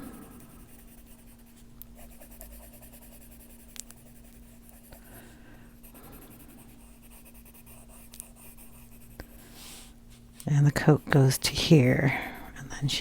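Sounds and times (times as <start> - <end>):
pencil scratching on paper: 0.0 - 5.2, 5.8 - 9.3
faint steady hum: 0.0 - 13.0.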